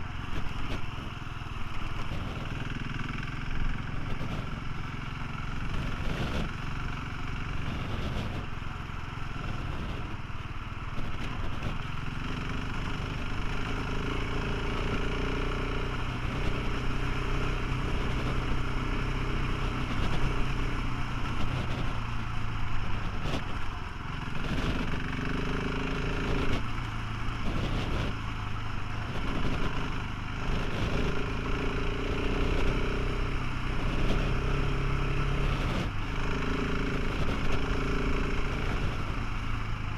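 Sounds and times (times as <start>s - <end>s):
motorcycle engine running: 0.0s - 39.9s
steady rushing noise: 0.0s - 39.9s.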